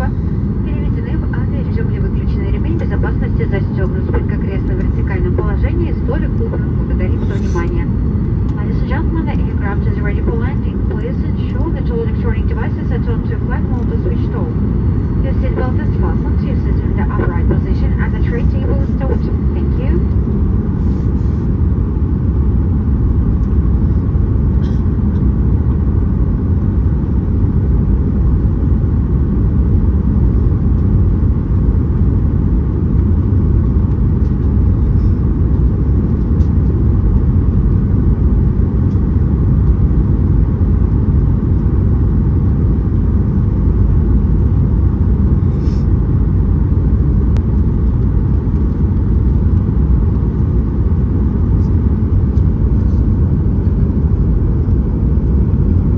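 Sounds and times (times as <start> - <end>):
aircraft cabin engine rumble: 0.0 - 55.9.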